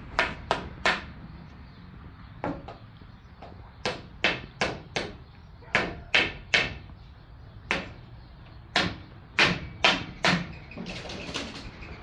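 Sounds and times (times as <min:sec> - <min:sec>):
sharp knocks: 0:00.2 - 0:01.1, 0:03.4 - 0:05.2, 0:08.8 - 0:10.5.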